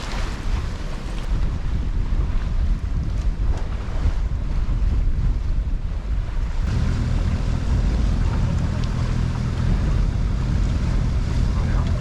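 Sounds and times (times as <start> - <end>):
water rushing: 0.0 - 1.5, 6.4 - 12.0
wind buffeting microphone: 0.0 - 12.0
boat engine drone: 6.4 - 12.0.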